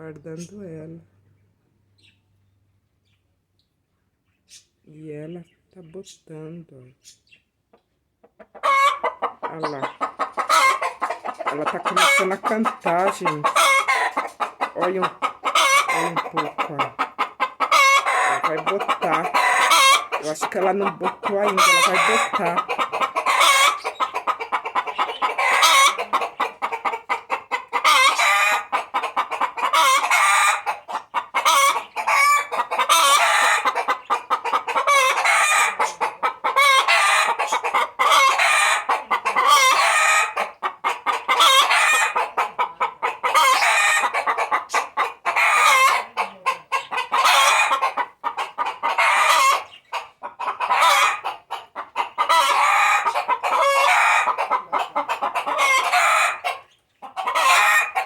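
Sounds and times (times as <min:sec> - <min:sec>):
hen cackling: 0:08.2 - 0:58.0
rooster calling: 0:17.7 - 0:26.5.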